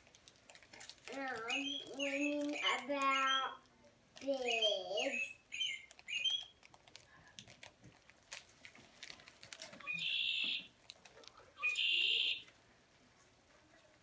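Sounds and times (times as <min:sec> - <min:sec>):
toy bird buzzy calls: 0:01.2 - 0:03.6, 0:04.3 - 0:06.6, 0:09.9 - 0:10.7, 0:11.6 - 0:12.5.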